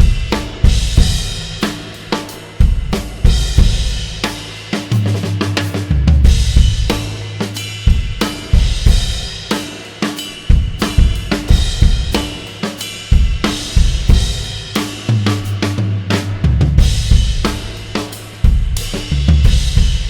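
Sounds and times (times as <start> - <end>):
drum kit groove: 0.0 - 20.0
ringing cymbals: 6.5 - 15.6.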